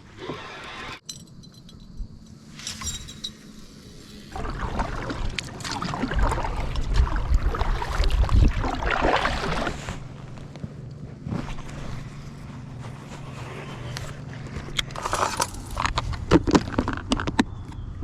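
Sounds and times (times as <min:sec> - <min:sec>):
paddle strokes splashing in water: 0:04.3 - 0:10.5.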